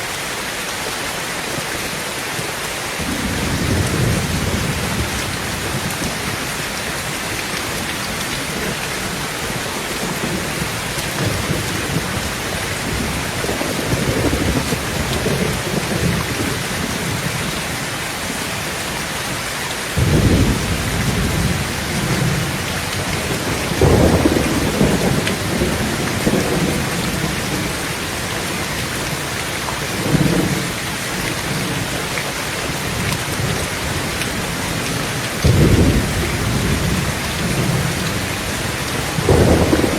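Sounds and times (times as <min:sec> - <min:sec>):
heavy rain on a tin roof: 0:00.0 - 0:39.9
thunder rumbling: 0:03.0 - 0:17.8, 0:20.0 - 0:39.9.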